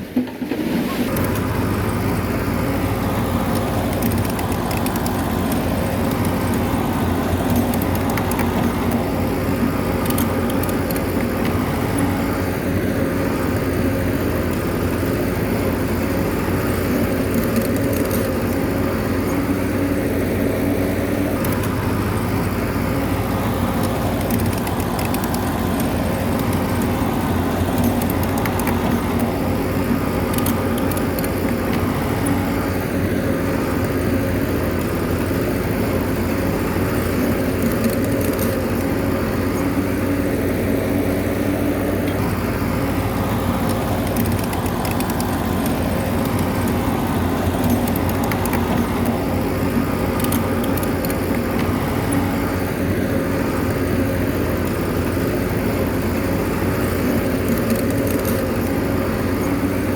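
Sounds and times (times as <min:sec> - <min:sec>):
bulldozer diesel engine running: 0:00.0 - 0:59.9
faint clicks: 0:43.2 - 0:52.2, 0:56.9 - 0:58.8.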